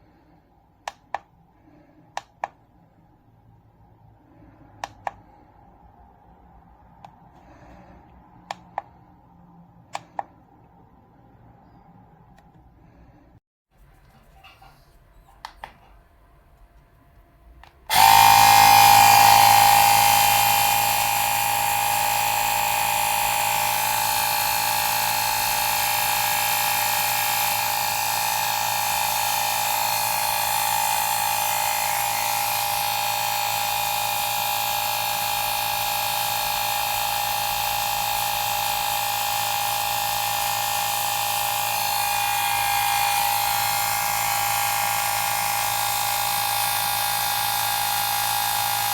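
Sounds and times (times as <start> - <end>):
electric tyre pump motor whine: 17.9 - 48.9.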